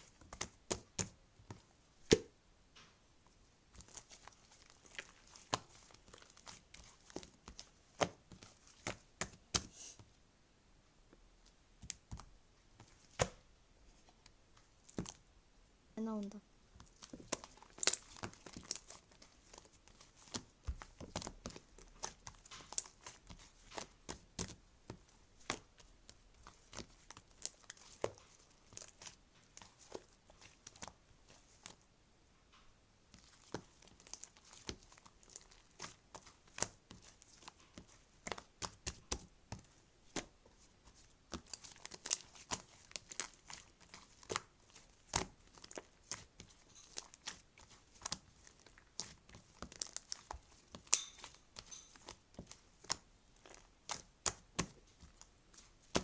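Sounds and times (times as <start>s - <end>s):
packaging crinkling: 41.4s - 53.7s.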